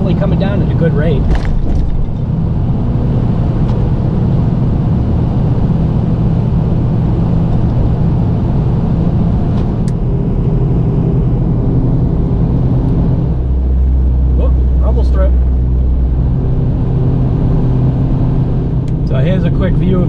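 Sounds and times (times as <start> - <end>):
road noise: 0.0 - 20.0
truck engine drone: 0.0 - 20.0.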